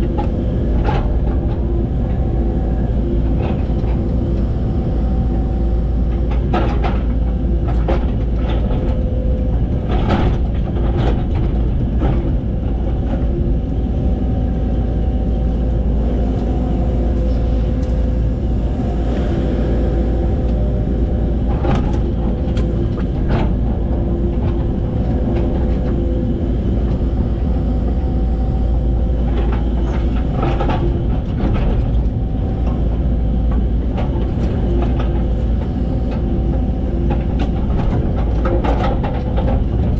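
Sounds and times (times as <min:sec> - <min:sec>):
excavator engine droning: 0:00.0 - 0:39.9
hydraulic whine: 0:13.4 - 0:31.7.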